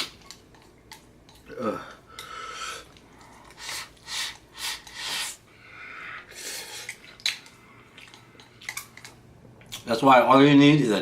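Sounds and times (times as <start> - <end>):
airy mouth sounds: 1.3 - 5.4, 6.1 - 8.8.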